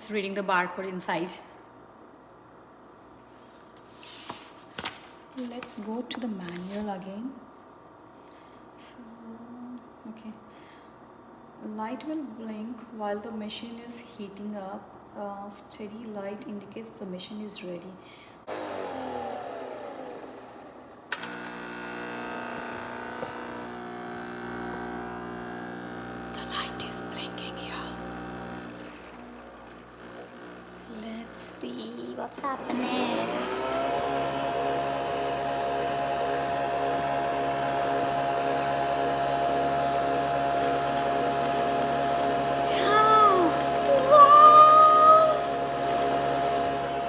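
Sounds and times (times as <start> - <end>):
mechanical hum: 0.0 - 47.0
motor whine: 18.5 - 31.7, 32.7 - 47.0.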